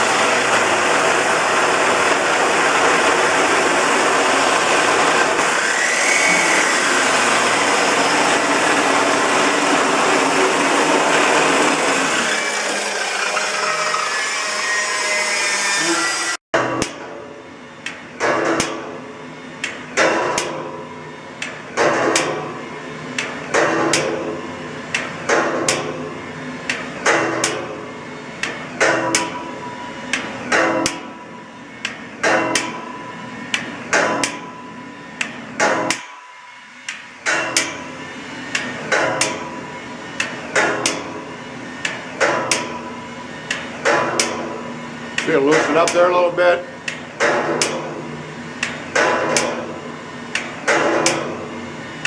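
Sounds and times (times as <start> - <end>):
hammer striking steel: 16.6 - 48.0, 48.6 - 49.8, 50.4 - 51.5.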